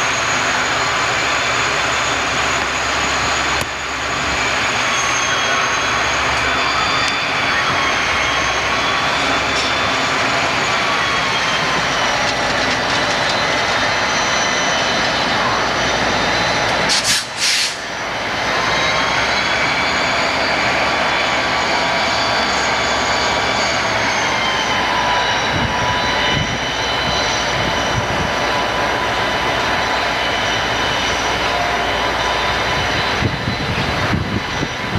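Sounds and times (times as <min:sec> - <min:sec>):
train rumbling on rails: 0:00.0 - 0:34.9
wheels ringing: 0:01.5 - 0:16.9.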